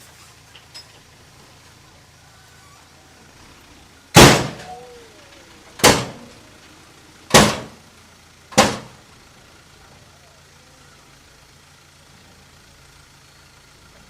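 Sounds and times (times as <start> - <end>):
faint steady background noise: 0.0 - 14.0
loud sudden bangs: 4.1 - 6.5, 7.3 - 7.8, 8.5 - 9.0.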